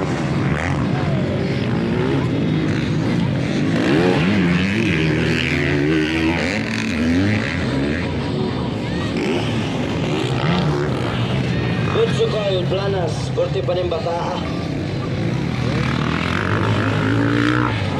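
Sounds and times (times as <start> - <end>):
motocross motorcycle engines revving: 0.0 - 17.9.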